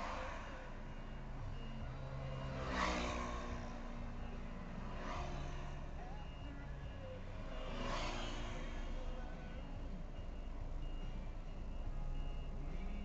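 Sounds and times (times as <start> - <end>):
diesel engine running: 8.4 - 13.0.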